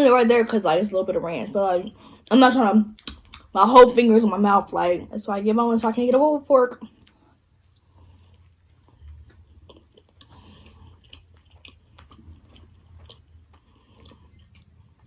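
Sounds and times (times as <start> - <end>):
wet mouth clicks: 3.0 - 3.5
chewing chicken wings: 6.9 - 15.0.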